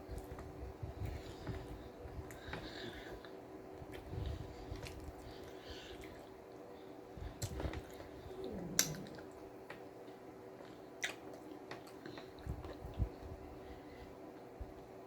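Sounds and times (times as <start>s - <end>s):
person chewing sandwich: 0.0s - 6.4s, 7.3s - 9.5s, 10.5s - 13.2s
wet mouth clicks: 8.6s - 9.3s.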